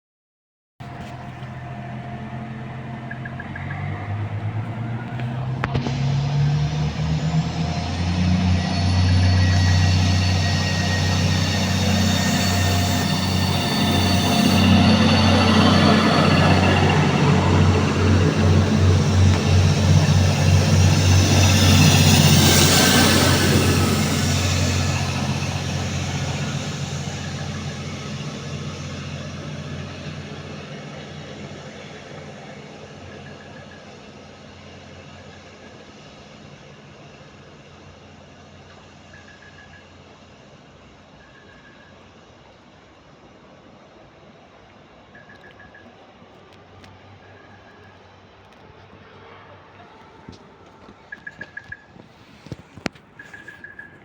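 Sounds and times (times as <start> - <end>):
diesel train engines under load: 0.8 - 54.0
high whine rising in pitch: 1.4 - 35.6.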